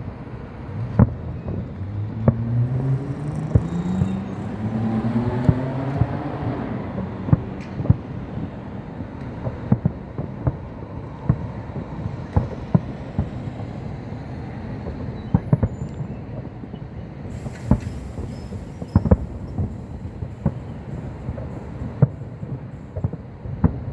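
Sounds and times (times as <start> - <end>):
fireworks bangs and booms: 0.0 - 23.9
hissing crackle: 17.1 - 23.9.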